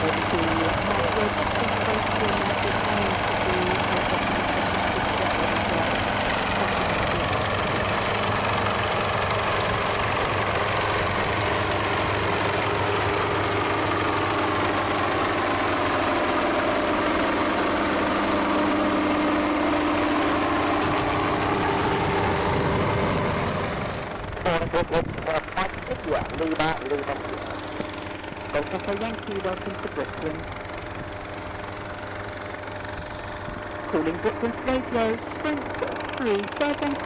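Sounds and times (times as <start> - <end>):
helicopter engine and rotor: 0.0 - 37.0.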